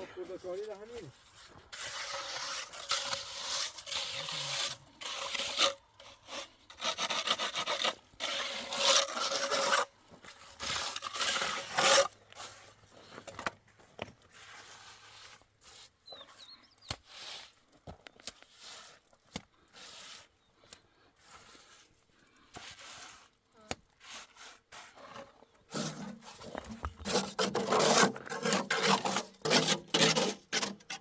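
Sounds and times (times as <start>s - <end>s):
quiet scraping: 0.0s - 16.4s, 24.0s - 31.0s
hand tool rasping: 1.7s - 9.9s, 10.6s - 12.6s, 24.0s - 31.0s.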